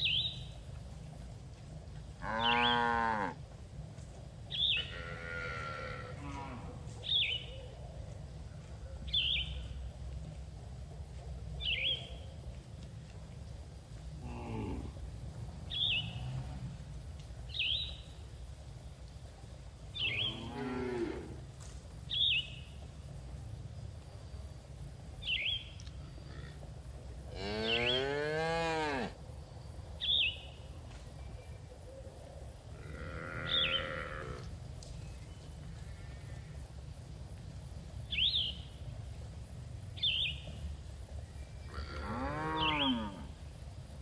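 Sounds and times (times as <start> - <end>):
bird chirping: 8.9 - 10.1, 11.6 - 12.5.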